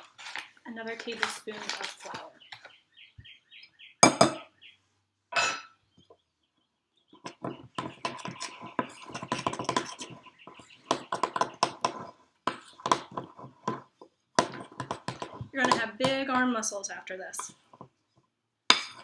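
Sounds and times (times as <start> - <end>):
spoon scraping bowl stirring dough: 0.0 - 2.7, 7.2 - 16.3
spoon knocking on bowl: 4.0 - 4.4.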